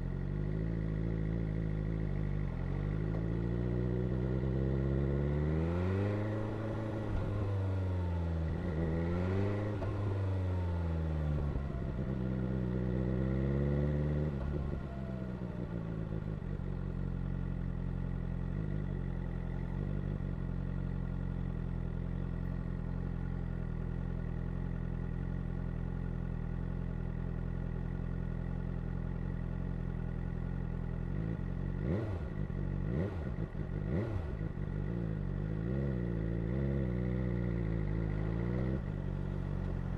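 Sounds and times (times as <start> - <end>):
motorcycle engine idling: 0.0 - 5.4, 14.4 - 39.9
motorcycle engine revving: 0.0 - 39.9.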